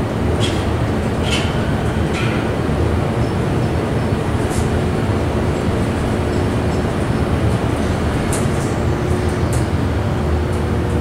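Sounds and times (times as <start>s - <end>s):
elevator car low rumble: 0.0s - 11.0s
faint constant hum: 0.0s - 11.0s.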